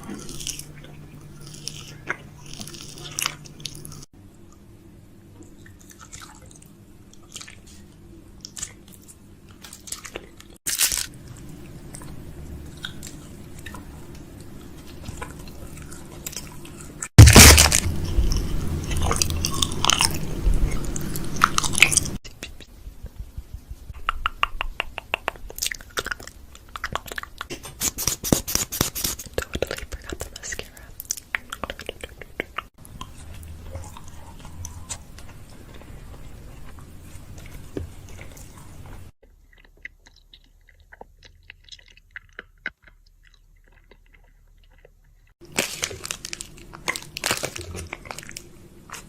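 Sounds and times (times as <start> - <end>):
packaging crinkling: 17.2 - 18.5, 45.4 - 49.0.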